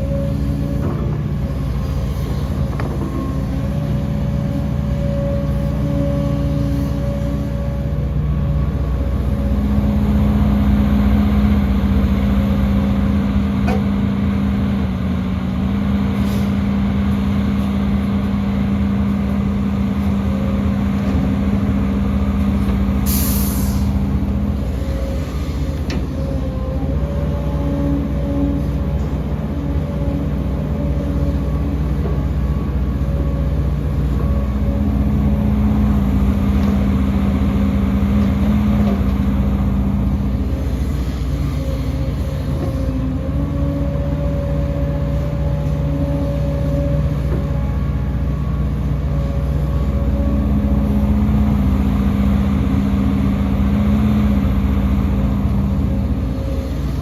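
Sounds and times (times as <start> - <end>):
diesel machinery engine drone: 0.0 - 57.0
hissing air burst: 23.1 - 23.9.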